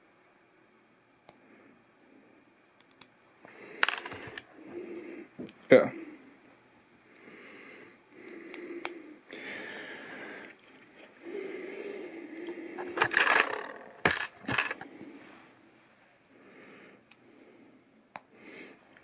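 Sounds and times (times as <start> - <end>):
plastic pieces clicking: 3.8 - 4.5, 12.8 - 14.8
plastic pieces sliding and rubbing: 3.8 - 4.5, 12.8 - 15.6.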